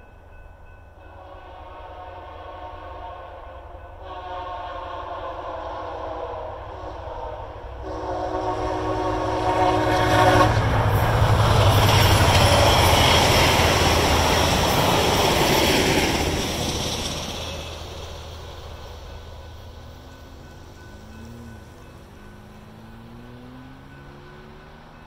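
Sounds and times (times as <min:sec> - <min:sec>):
train passing with wheel noise: 0:00.0 - 0:25.0
train horn: 0:01.0 - 0:16.2.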